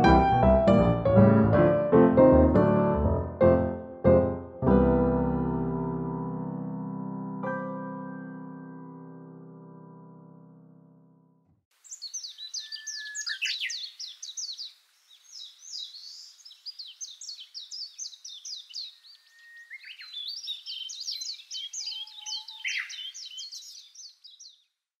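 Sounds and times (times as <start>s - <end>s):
small songbirds twittering: 11.7s - 24.9s.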